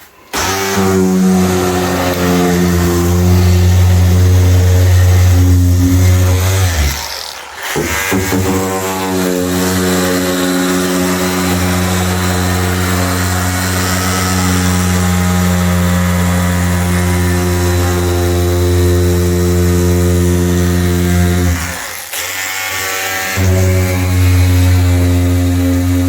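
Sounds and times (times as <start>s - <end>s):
power tool motor running: 0.0s - 26.0s.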